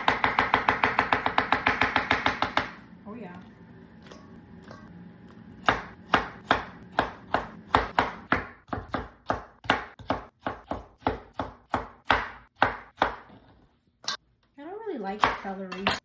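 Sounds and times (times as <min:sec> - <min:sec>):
knife chopping on cutting board: 0:00.0 - 0:02.8, 0:05.6 - 0:13.3.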